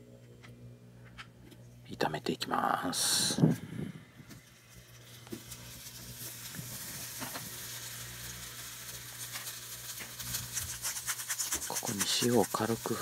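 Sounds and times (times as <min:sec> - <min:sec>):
food sizzling in oil: 0:04.4 - 0:13.0.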